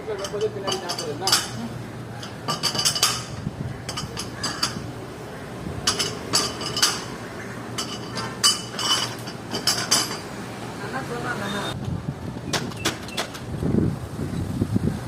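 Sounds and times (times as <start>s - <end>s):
metal tools clicking and clinking: 0.1s - 4.9s, 5.8s - 7.2s, 7.8s - 10.3s.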